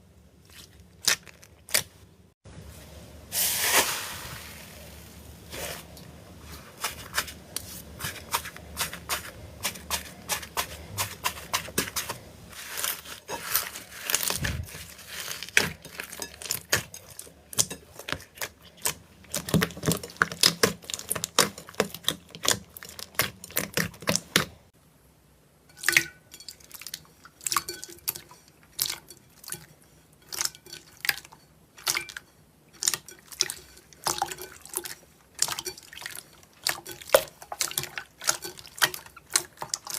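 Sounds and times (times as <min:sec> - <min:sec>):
background hiss: 0:02.5 - 0:07.9.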